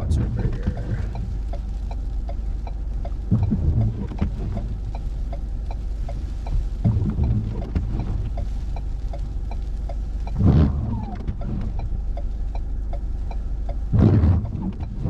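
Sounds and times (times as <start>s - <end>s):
car engine idling: 0.0s - 15.0s
faint even ticking: 0.0s - 15.0s
rustle or thump: 10.3s - 11.8s, 14.0s - 14.9s.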